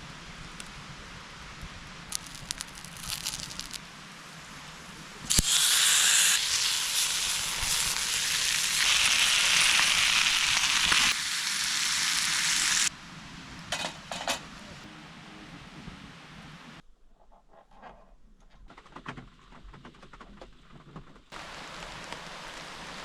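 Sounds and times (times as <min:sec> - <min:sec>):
meat sizzling on griddle: 0:02.1 - 0:03.8, 0:05.3 - 0:12.9, 0:21.4 - 0:23.0.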